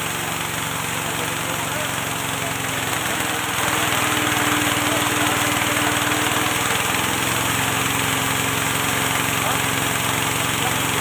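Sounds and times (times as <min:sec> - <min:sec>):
small engine running under load: 0:00.0 - 0:11.0.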